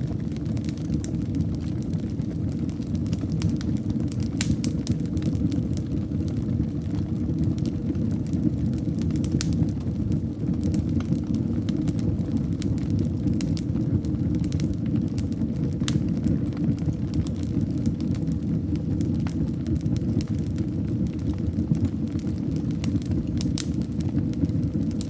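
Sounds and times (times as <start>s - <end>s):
fire crackling: 0.0s - 25.0s
low fire rumble: 0.0s - 25.0s.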